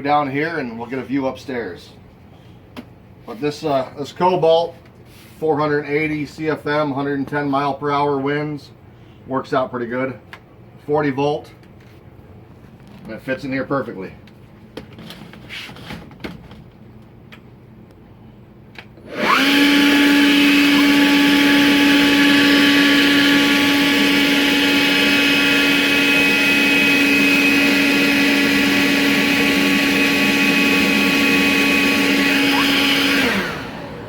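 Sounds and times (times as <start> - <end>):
leaf blower high whine: 19.0 - 34.0.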